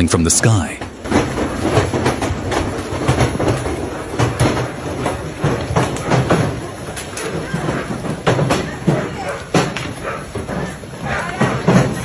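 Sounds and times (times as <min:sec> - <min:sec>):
hailstones striking hard surfaces: 0:00.9 - 0:09.8.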